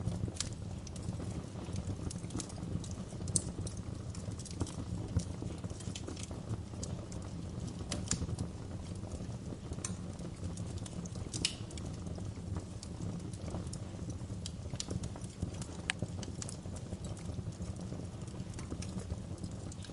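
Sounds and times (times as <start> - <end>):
fire crackling and popping: 0.0 - 19.9
low fire rumble: 0.0 - 19.9.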